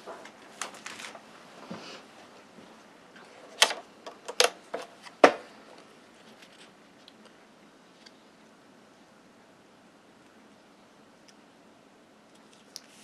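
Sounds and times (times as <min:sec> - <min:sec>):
paper rustling: 0:00.5 - 0:01.2.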